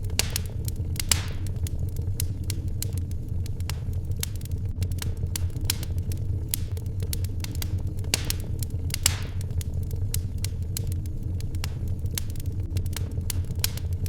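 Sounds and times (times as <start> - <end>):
fire rumbling: 0.0 - 14.0
loud fire pops: 0.0 - 14.0
wood fire crackling: 0.0 - 14.0.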